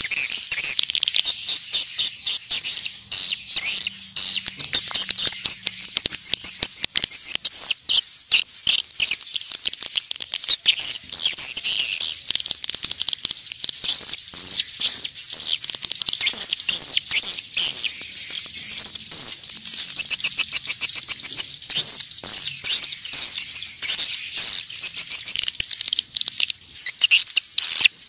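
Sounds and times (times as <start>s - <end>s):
swiftlets twittering: 0.0s - 28.0s.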